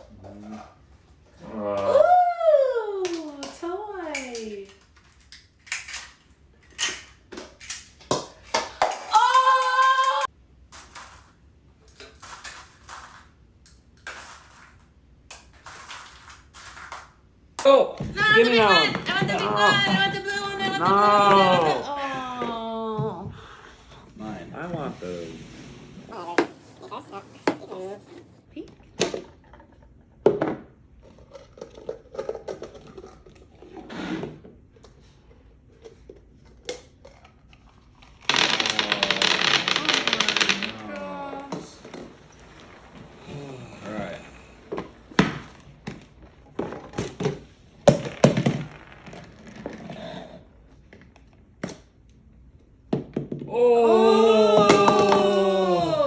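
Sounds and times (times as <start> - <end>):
toys and packaging rustling: 3.2 - 17.3, 34.7 - 47.5
plastic wrappers crinkling: 37.1 - 43.2.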